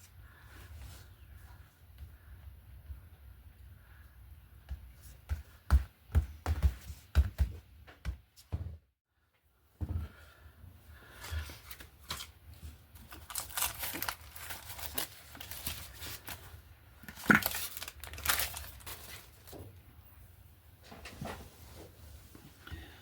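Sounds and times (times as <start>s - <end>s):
paper rustling and tearing: 11.1s - 16.5s, 17.1s - 19.5s.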